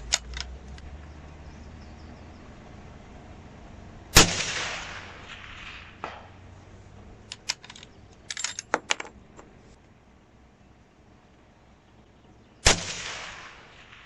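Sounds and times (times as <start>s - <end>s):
rifle bolt clicking: 0.0s - 0.9s, 7.3s - 9.1s
rifle shot with echo: 4.2s - 6.4s, 12.6s - 14.0s.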